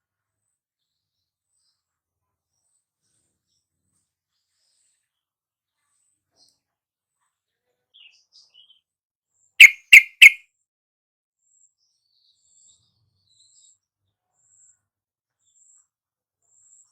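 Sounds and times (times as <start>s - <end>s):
bird sharp chirps: 9.6s - 10.4s.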